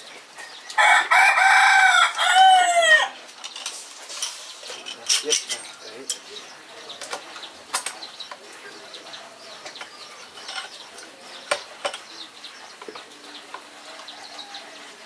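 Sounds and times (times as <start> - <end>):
small birds chirping: 0.0 - 15.0
sharp clicks and knocks: 7.0 - 8.4, 11.4 - 12.2.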